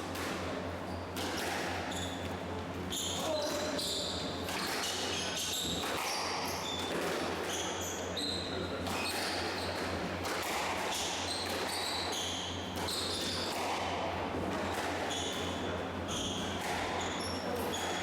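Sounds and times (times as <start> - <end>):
squash ball hitting rackets and walls: 1.1 - 2.2, 4.4 - 7.8, 8.8 - 18.0
shoes squeaking on court floor: 1.9 - 6.8, 11.2 - 13.6, 16.1 - 18.0.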